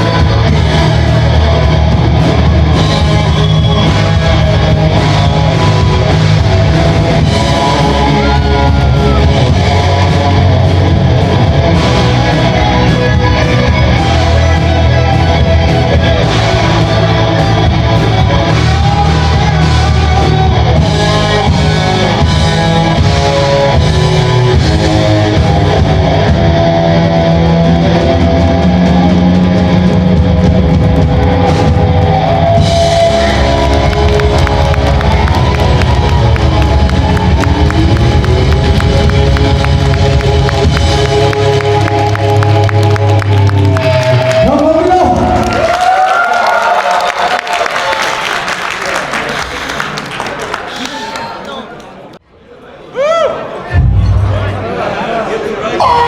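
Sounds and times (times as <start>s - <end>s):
electric guitar: 0.0s - 45.9s
heavy bass: 0.0s - 46.8s, 53.7s - 54.8s
rock band playing: 0.0s - 47.9s, 55.8s - 56.0s.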